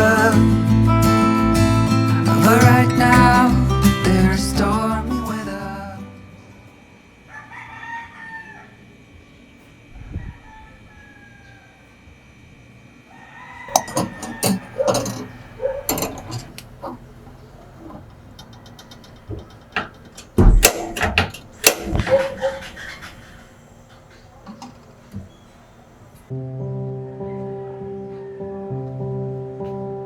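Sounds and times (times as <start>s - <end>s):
household objects clattering: 13.7s - 25.4s
heavy thud: 19.3s - 22.7s.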